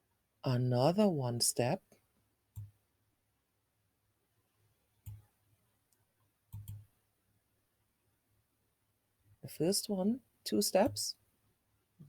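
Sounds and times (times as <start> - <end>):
computer mouse clicks: 2.6 - 2.8, 5.0 - 5.3, 6.5 - 6.9.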